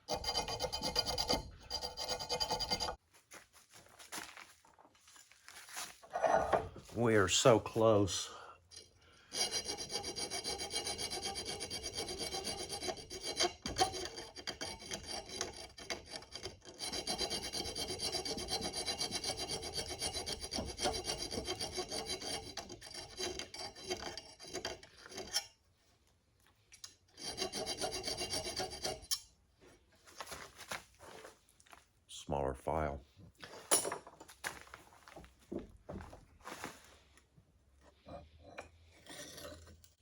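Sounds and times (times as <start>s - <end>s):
hand file rasping on metal: 0.0s - 3.0s, 8.7s - 25.6s, 27.1s - 29.3s.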